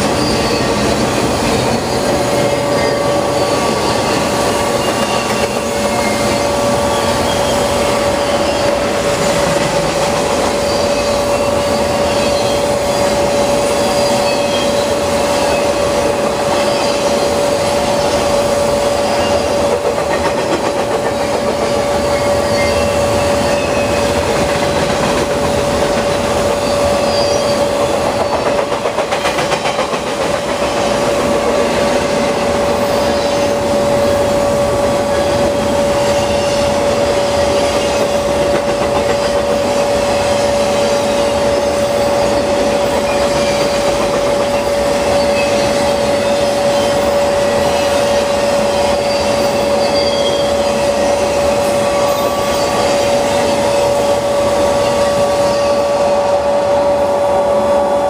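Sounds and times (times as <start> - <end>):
steel wheels rushing on rail: 0.0 - 58.0.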